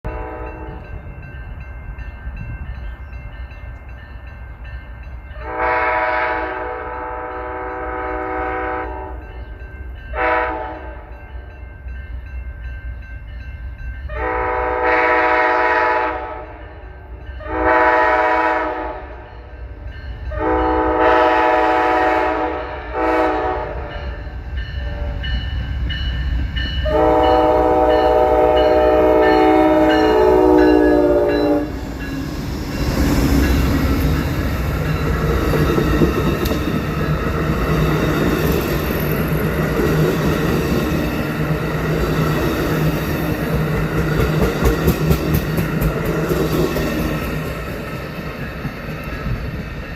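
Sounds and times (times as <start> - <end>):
train rumbling: 0.0 - 49.9
train air horn blasts: 0.1 - 0.8, 5.4 - 9.3, 10.1 - 11.1, 14.1 - 16.7, 17.4 - 19.3, 20.3 - 25.3, 26.8 - 31.9.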